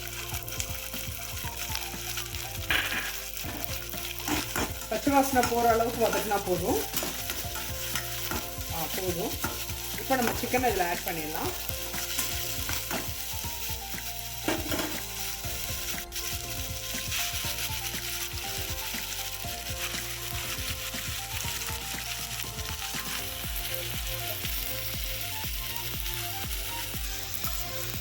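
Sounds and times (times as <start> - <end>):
chicken sizzling in oil: 0.0 - 28.0
spoon scraping pan: 2.6 - 18.4.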